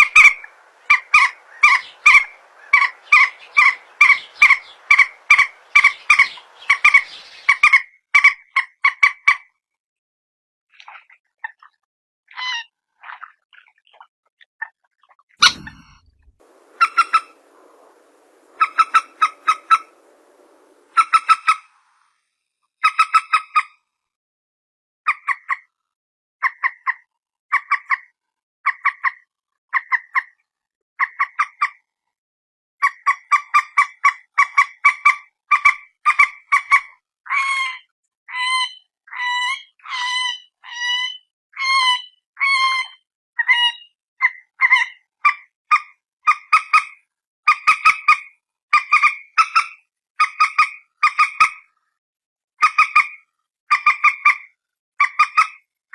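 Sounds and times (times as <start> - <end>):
bird giving sharp call notes: 0.0 - 7.6, 15.4 - 21.6.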